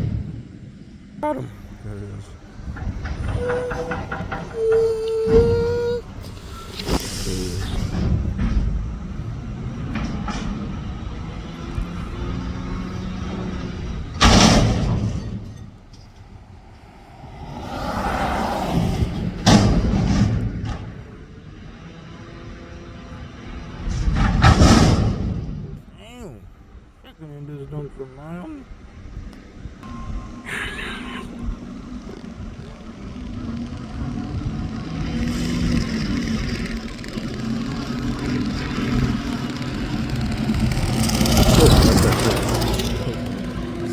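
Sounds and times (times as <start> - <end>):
tyre and road noise: 0.0 - 25.9, 31.2 - 43.9
garbage truck rumble: 1.6 - 21.3, 31.7 - 43.9.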